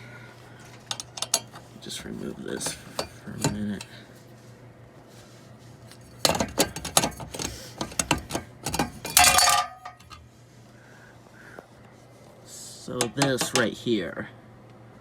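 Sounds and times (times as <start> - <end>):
fan cover clicking and scraping: 0.6 - 4.0, 5.8 - 10.3, 12.9 - 13.8
loud ringing clink: 9.0 - 10.2.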